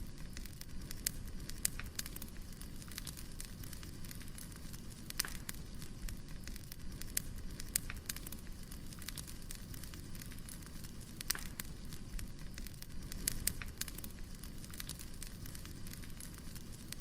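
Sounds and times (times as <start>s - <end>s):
firewood crackling and popping: 0.0s - 17.0s
low rumble of fire: 0.0s - 17.0s.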